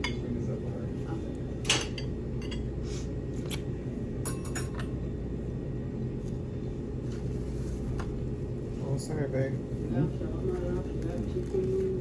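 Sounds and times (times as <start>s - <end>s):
low room hum: 0.0s - 12.0s
dishes and cutlery clinking: 1.6s - 2.7s, 4.2s - 5.0s.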